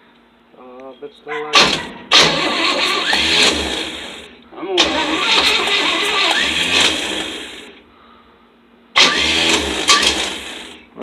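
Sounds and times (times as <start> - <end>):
van engine starting roughly: 1.6 - 7.8, 9.0 - 10.9.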